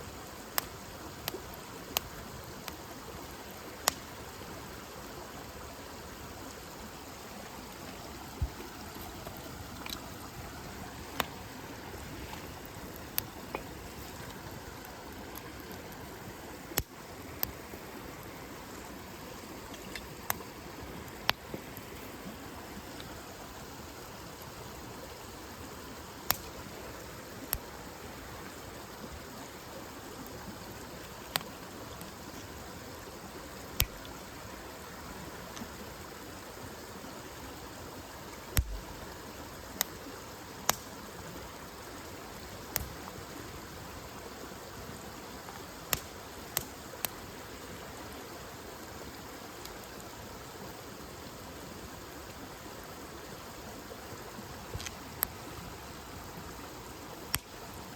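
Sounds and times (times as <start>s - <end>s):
campfire crackling and popping: 0.3s - 4.5s, 6.4s - 23.2s, 26.1s - 28.0s, 30.1s - 32.6s, 33.5s - 34.2s, 38.2s - 41.2s, 42.3s - 43.6s, 45.2s - 47.3s, 49.6s - 50.1s, 54.7s - 55.5s, 57.2s - 57.7s.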